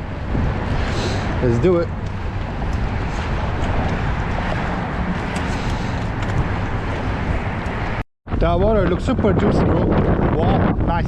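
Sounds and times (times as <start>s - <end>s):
boat motor droning: 0.0s - 8.0s
wind buffeting microphone: 0.0s - 11.0s.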